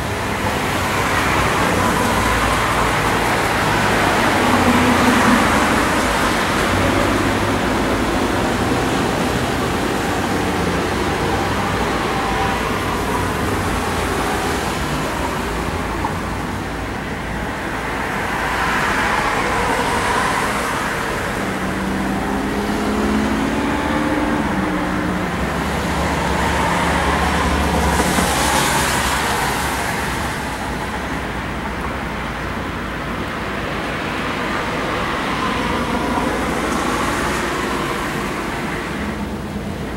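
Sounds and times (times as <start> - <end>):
road vehicle tyre and engine rumble: 0.0 - 39.9
passing vehicle engine: 18.3 - 31.0.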